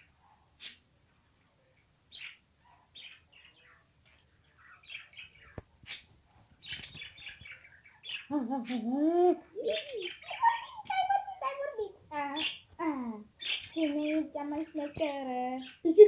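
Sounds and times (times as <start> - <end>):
parrot chirping: 9.5 - 14.2.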